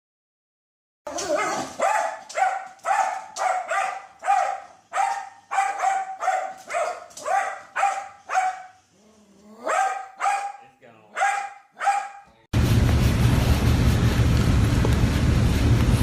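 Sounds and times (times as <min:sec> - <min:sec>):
dog barking: 0:01.1 - 0:08.8, 0:09.6 - 0:12.4.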